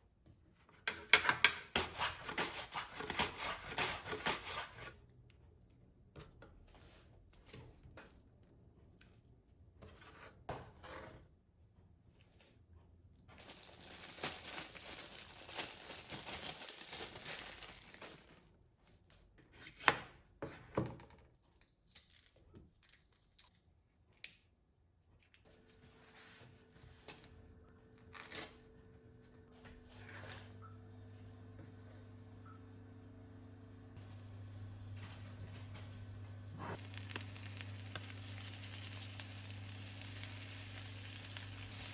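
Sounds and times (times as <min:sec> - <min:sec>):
tearing with crinkling: 0:13.4 - 0:18.5, 0:21.5 - 0:23.6, 0:36.7 - 0:41.9
steady hum: 0:26.6 - 0:41.8.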